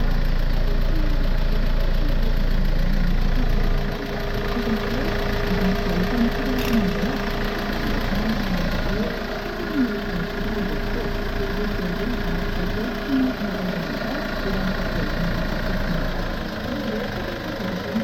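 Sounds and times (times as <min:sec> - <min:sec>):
faint voice from radio: 0:00.0 - 0:18.0
truck engine idling: 0:00.0 - 0:18.0.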